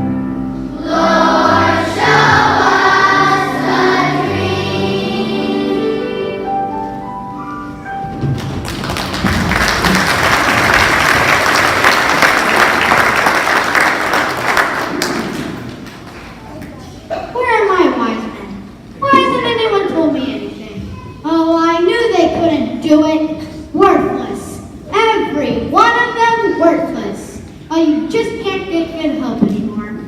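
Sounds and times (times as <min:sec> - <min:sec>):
children's choir singing: 0:00.6 - 0:07.0
audience applauding: 0:08.3 - 0:16.4.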